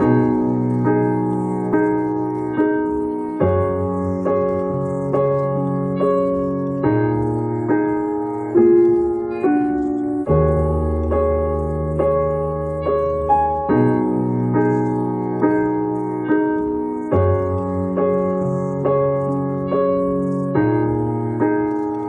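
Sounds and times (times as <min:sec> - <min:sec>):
slow piano notes: 0:00.0 - 0:22.0.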